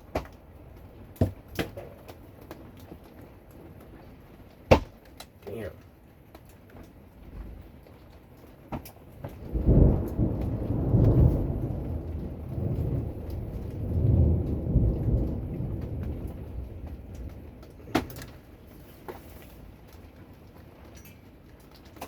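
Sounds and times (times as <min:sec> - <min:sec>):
steady rain: 0:00.0 - 0:22.0
thunder rumbling: 0:09.2 - 0:18.9.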